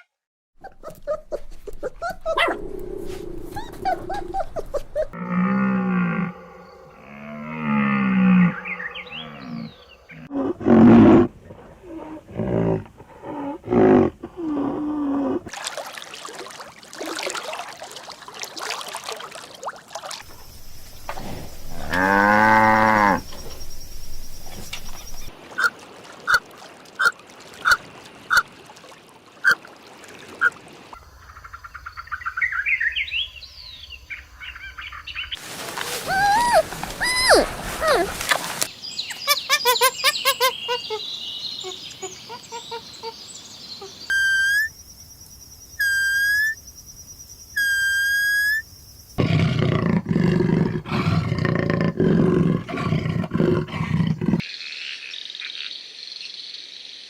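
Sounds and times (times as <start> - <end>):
farm animal calls: 0.6 - 10.3, 20.3 - 25.3, 35.4 - 43.2.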